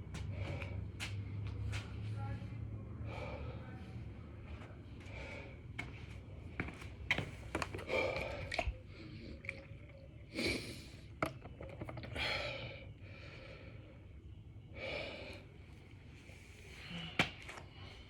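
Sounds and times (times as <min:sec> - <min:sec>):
man breathing hard: 0:00.2 - 0:01.7, 0:02.9 - 0:06.4, 0:07.8 - 0:09.4, 0:12.1 - 0:18.0.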